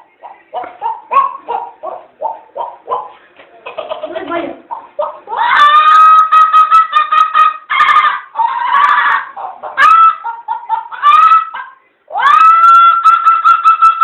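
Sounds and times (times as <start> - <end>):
person imitating fowl calls: 3.7 - 14.0.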